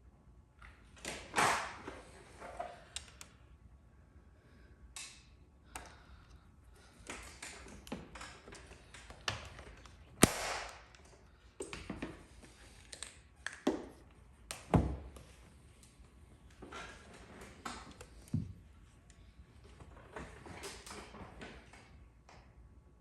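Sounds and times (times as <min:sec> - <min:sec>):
sharp loud crack: 0:10.2 - 0:10.8.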